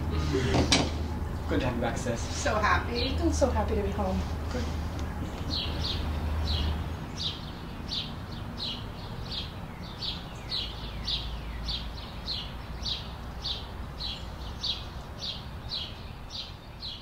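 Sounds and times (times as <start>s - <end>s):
faint outdoor rumble: 0.0s - 17.0s
songbird calling: 4.5s - 17.0s.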